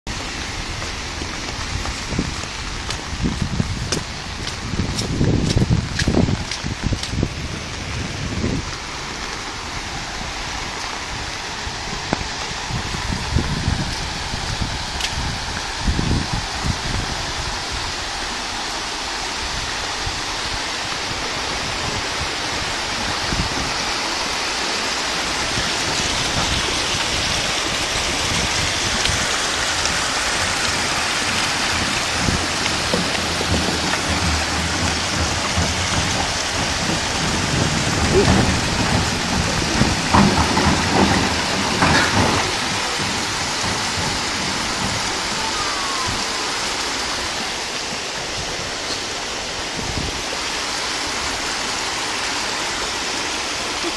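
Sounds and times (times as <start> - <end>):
floodwater running across road: 0.0 - 53.9
heavy rain on a street: 0.0 - 53.9
low rumbling and knocks: 29.9 - 50.2.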